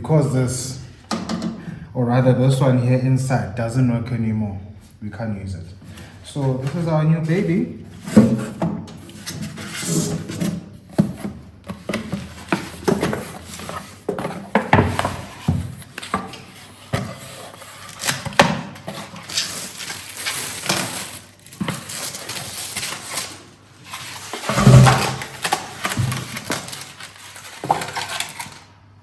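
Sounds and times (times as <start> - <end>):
microwave handling knocks and clinks: 1.1 - 1.6.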